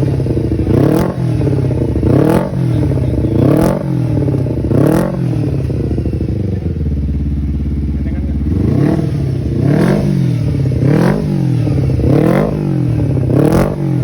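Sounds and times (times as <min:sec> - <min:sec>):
motorcycle engine revving and idling: 0:00.0 - 0:14.0.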